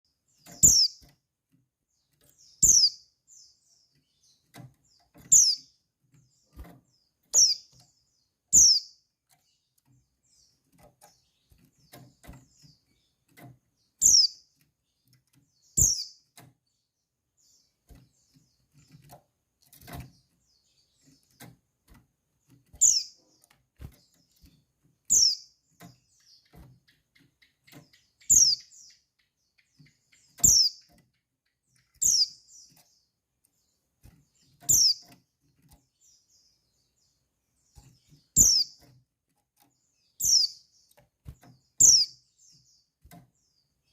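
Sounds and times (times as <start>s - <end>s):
faint taps and rustles: 3.9s - 5.4s, 6.0s - 8.2s, 9.2s - 16.8s, 17.7s - 32.0s, 32.6s - 41.8s, 42.4s - 43.9s.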